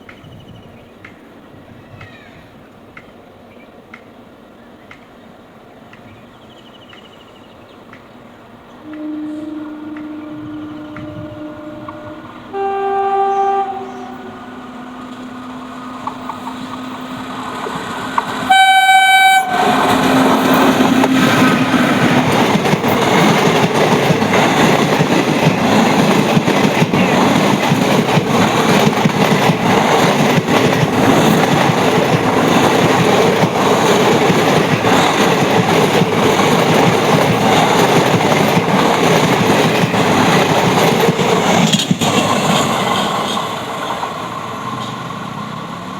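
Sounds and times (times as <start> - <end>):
train horn: 8.8 - 17.2, 18.2 - 24.1
train wheels clattering: 13.9 - 45.4.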